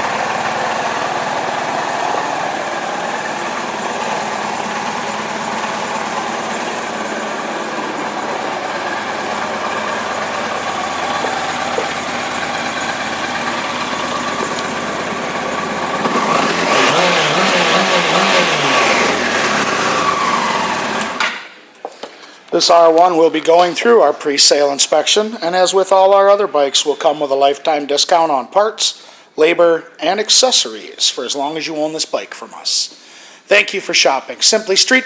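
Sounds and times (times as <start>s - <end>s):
motorcycle engine idling and revving: 0.0s - 21.2s.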